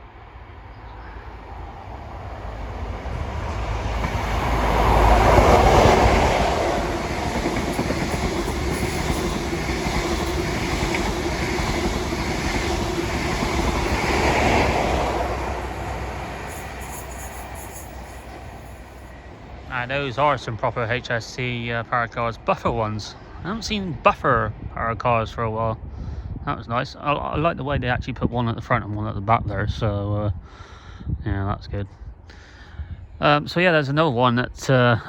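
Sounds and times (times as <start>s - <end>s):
diesel train engine: 0.0s - 23.4s
train wheel clatter: 3.6s - 19.1s.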